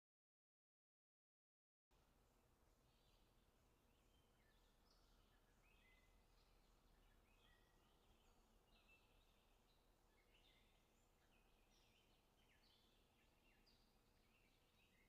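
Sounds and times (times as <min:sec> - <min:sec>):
low hiss: 0:02.0 - 0:15.0
faint bird chirps: 0:02.7 - 0:15.0.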